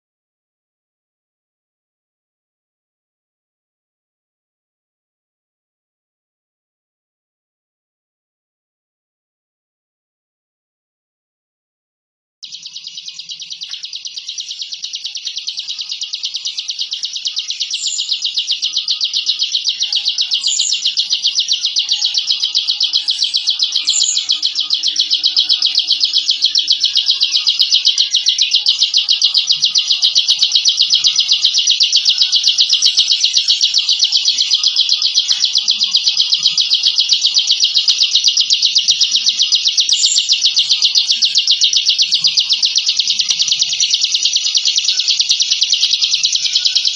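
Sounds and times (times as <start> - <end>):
short high bird chips: 12.4 - 46.9
bird buzzing trill: 12.5 - 46.9.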